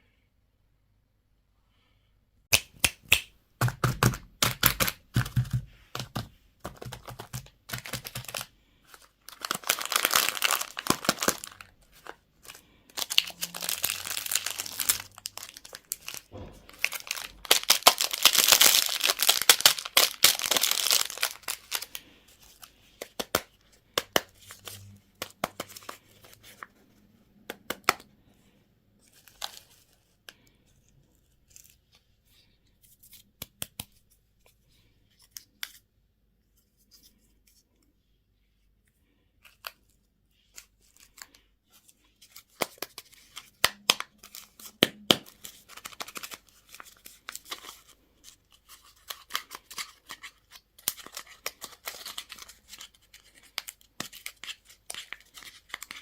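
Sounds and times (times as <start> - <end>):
plastic packaging crinkling: 4.4 - 23.5, 42.2 - 56.0.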